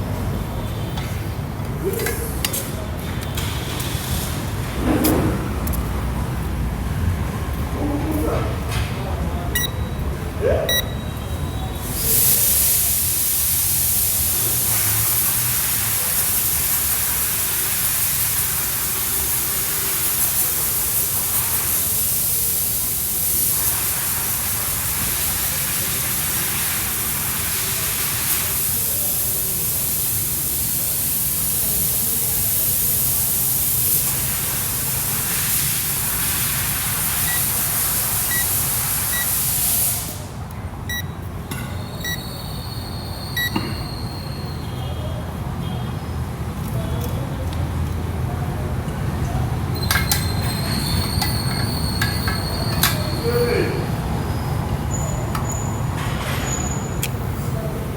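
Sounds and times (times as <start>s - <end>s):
faint short electronic beeps: 9.6s - 10.1s, 10.7s - 11.8s, 40.9s - 45.0s
pressurised gas hissing: 11.8s - 40.5s.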